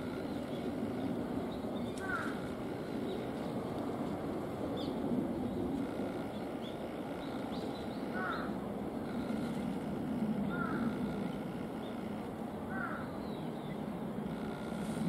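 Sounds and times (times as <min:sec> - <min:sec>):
bird calling: 0:00.0 - 0:03.6, 0:04.8 - 0:09.7, 0:10.4 - 0:15.0.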